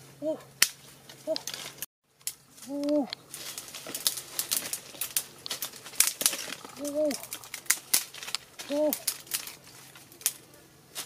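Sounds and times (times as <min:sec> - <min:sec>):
dry sticks and leaves crackling: 0:00.4 - 0:11.0
bird cooing: 0:02.6 - 0:03.2, 0:06.4 - 0:07.7, 0:08.6 - 0:09.2.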